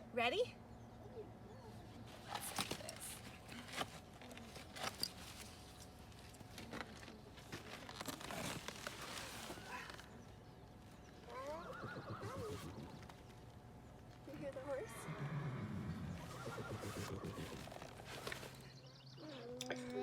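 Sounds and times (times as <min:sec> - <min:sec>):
horse whinnying: 0:11.3 - 0:13.1, 0:14.7 - 0:18.0.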